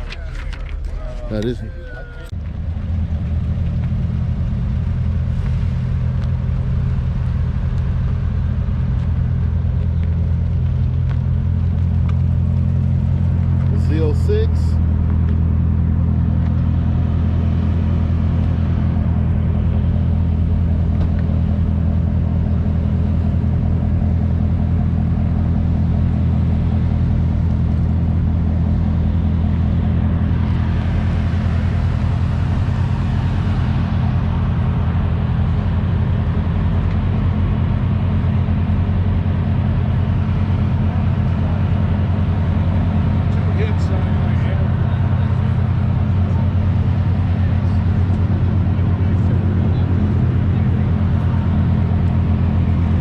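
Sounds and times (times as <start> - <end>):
rushing noise: 0.0 - 15.0, 28.1 - 53.0
car engine idling: 0.0 - 53.0.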